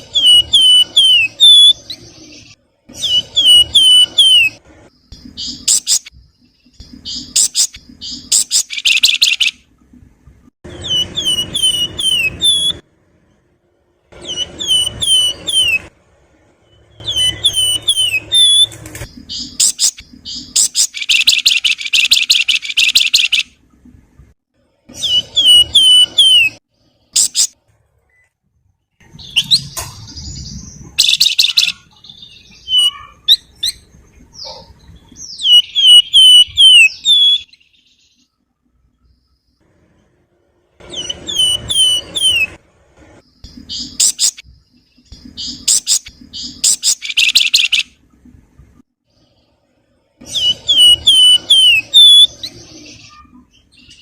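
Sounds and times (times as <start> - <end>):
songbird flute-like whistles: 0.1 - 1.9, 10.8 - 12.8, 17.0 - 18.8
songbird buzzy chattering trills: 17.1 - 23.5, 43.5 - 47.8.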